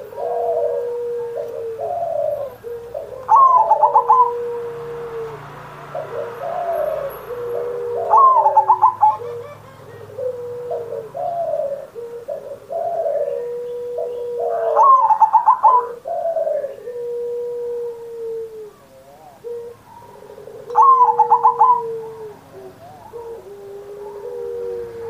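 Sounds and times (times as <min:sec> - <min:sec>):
dove cooing: 0:00.0 - 0:25.0
dove stuttering high notes: 0:06.0 - 0:11.7.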